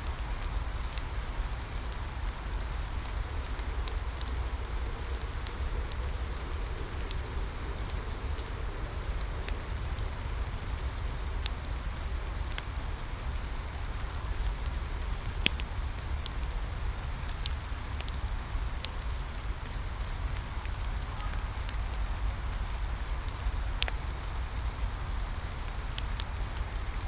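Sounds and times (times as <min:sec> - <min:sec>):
rain falling: 0:00.0 - 0:27.0
wood fire crackling and popping: 0:00.0 - 0:27.0.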